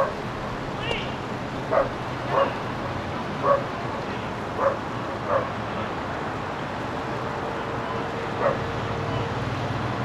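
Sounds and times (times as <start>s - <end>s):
dog barking: 1.7s - 2.6s, 3.4s - 3.7s, 4.6s - 5.5s, 8.4s - 8.6s.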